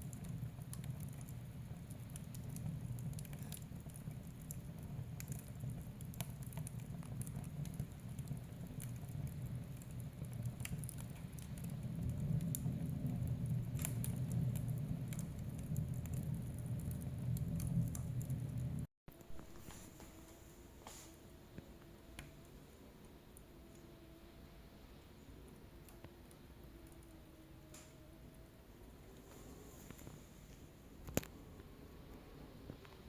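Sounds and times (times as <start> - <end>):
fire flames rumbling: 0.0 - 18.9
fire crackles and pops: 0.0 - 20.0, 20.8 - 23.9, 25.2 - 33.0.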